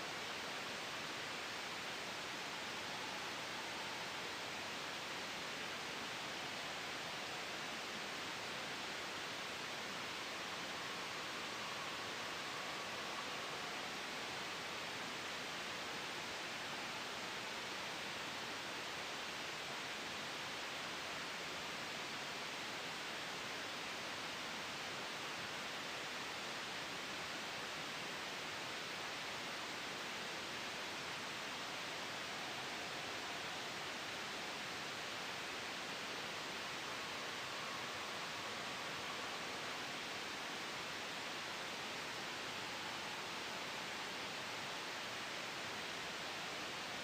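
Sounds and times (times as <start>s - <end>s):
gentle wind: 0.0s - 47.0s
soft white noise: 0.0s - 47.0s.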